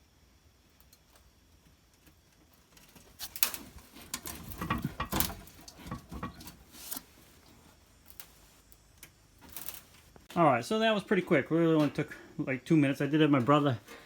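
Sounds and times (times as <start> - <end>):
plastic fuel tank scraping and rattling: 3.0 - 7.2
floor jack rattling: 3.6 - 6.6.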